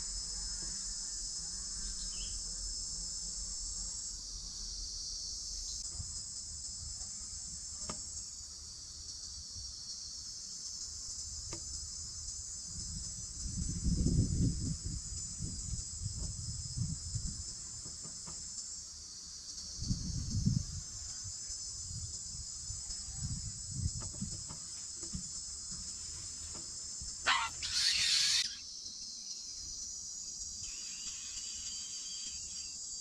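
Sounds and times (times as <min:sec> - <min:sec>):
insect chorus: 0:00.0 - 0:33.0
loud hissy rasping burst: 0:25.8 - 0:28.6, 0:30.6 - 0:33.0.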